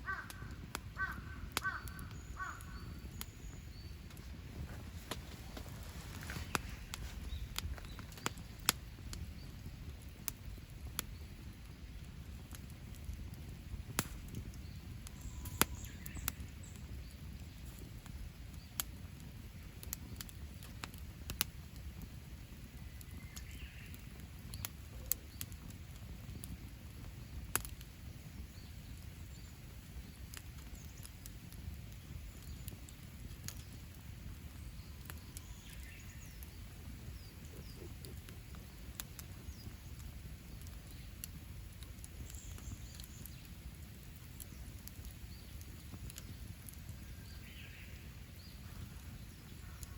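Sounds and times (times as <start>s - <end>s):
faint bird calls: 0.0s - 4.1s, 14.4s - 17.3s, 32.0s - 41.2s, 44.6s - 49.9s
campfire crackling and popping: 0.0s - 49.9s.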